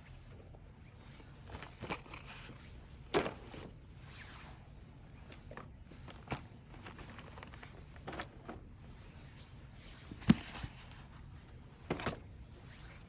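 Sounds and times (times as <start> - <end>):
packaging being handled: 5.4 - 8.6.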